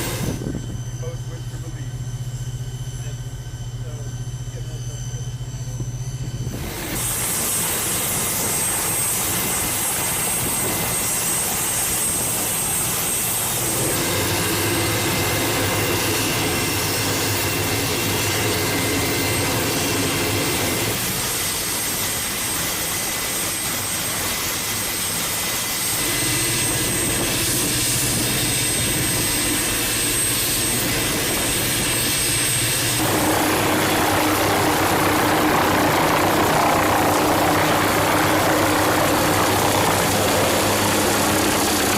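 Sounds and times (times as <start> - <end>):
aircraft engines running: 0.0 - 41.9
steady tones: 25.8 - 41.9.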